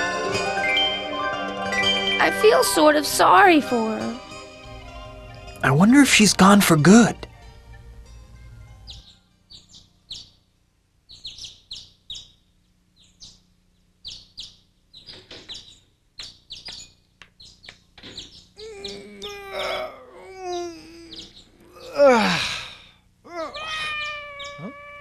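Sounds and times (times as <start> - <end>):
small birds chirping: 5.9 - 25.0
drawn-out stretching groan: 18.6 - 22.7, 23.3 - 25.0.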